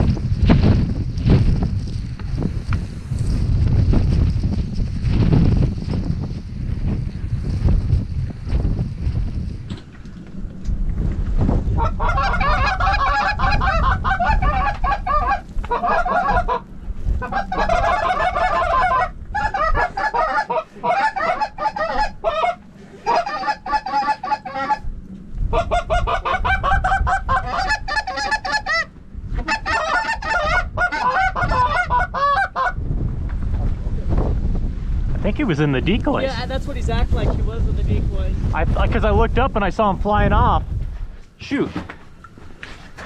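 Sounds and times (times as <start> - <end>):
wind rumbling on microphone: 0.0 - 43.0
geese honking: 11.8 - 24.9, 25.5 - 32.8.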